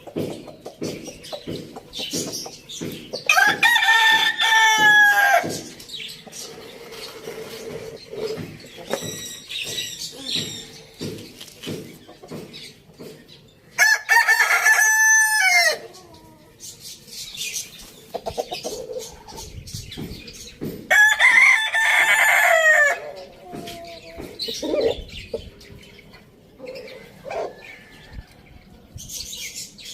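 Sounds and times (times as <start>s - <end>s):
chickens calling: 0.0s - 29.9s
rooster crowing: 13.8s - 15.8s, 20.9s - 23.1s.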